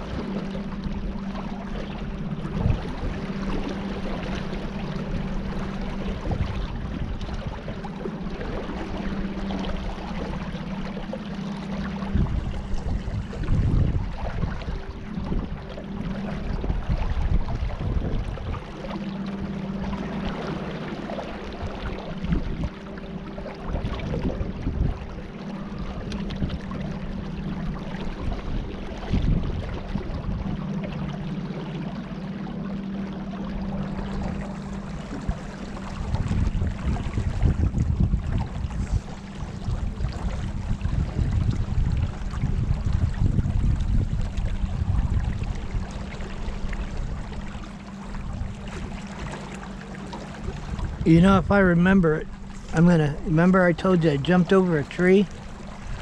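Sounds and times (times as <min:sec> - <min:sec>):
wind buffeting microphone: 0:00.0 - 0:31.9, 0:33.6 - 0:56.0
boat motor running: 0:00.0 - 0:56.0
water noise: 0:00.0 - 0:56.0
wind noise: 0:05.8 - 0:07.8, 0:12.0 - 0:18.7, 0:23.7 - 0:25.2, 0:27.9 - 0:30.6, 0:35.1 - 0:47.5.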